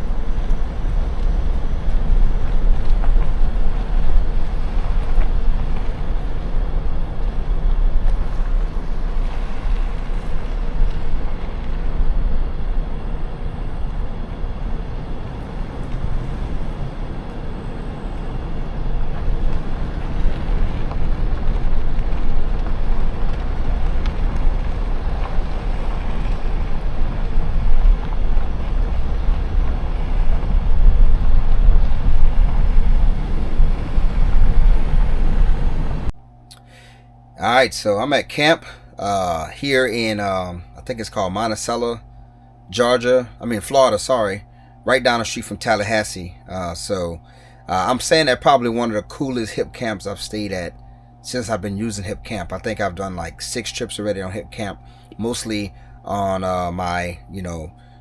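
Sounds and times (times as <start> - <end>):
wind buffeting microphone: 0.0 - 36.1
vehicle rumbling on road: 0.0 - 36.2
heavy low drone: 0.0 - 58.0.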